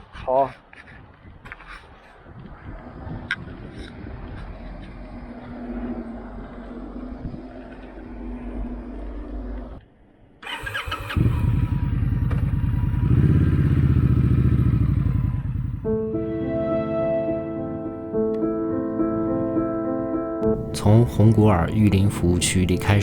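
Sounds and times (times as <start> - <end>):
motorcycle engine running: 10.5 - 15.9.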